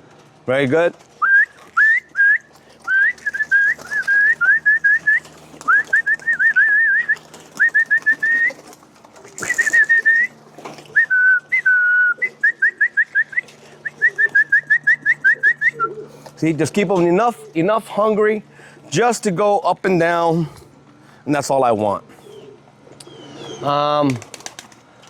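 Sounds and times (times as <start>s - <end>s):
person whistling: 1.2s - 8.6s, 9.4s - 10.3s, 11.0s - 16.0s.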